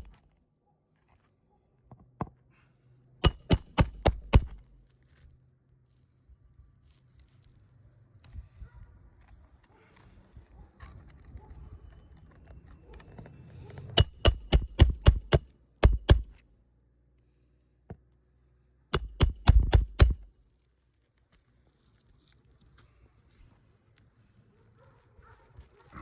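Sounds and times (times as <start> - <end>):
hammer striking metal: 3.2 - 4.6, 14.0 - 16.4, 19.0 - 20.3.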